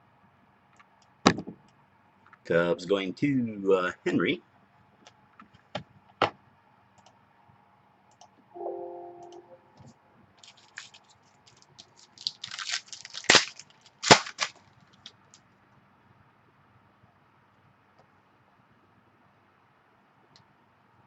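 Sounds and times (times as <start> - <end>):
brief low tone: 8.6 - 9.9
card pack wrapper crinkling: 10.4 - 15.1.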